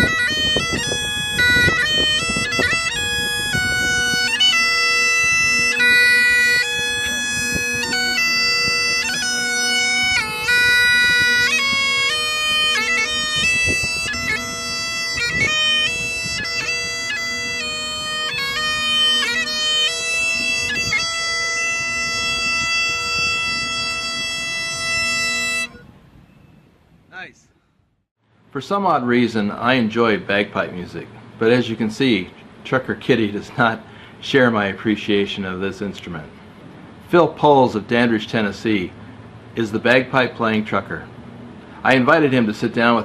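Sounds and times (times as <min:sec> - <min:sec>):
bagpipes playing a tune: 0:00.0 - 0:25.9.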